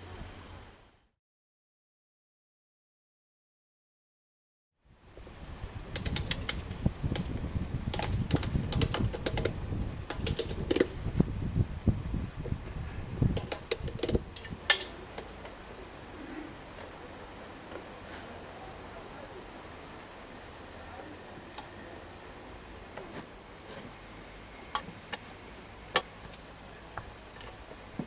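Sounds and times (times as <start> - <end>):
sharp clicks and clatters: 5.9 - 11.0, 13.4 - 15.3.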